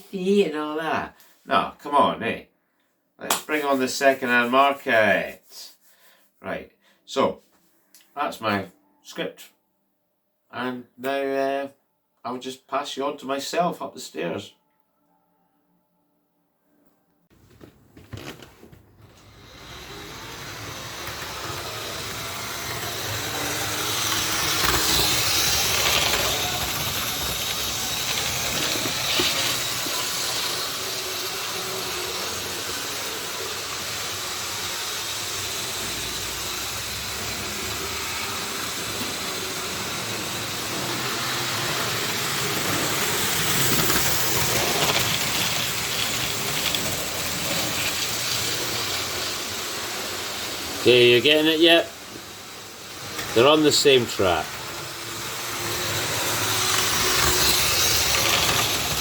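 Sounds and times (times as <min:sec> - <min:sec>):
model trains rumbling on track: 0:19.2 - 0:59.0.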